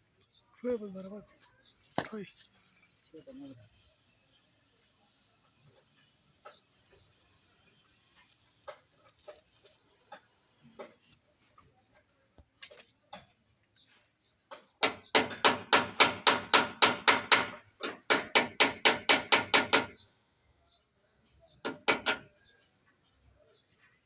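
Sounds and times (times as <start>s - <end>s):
rapid hammer strikes: 14.5s - 20.0s, 21.6s - 22.3s.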